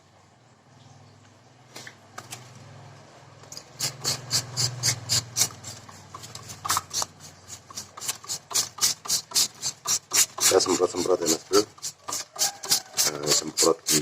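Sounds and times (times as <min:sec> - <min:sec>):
spray bottle spritzing: 0:03.8 - 0:14.0.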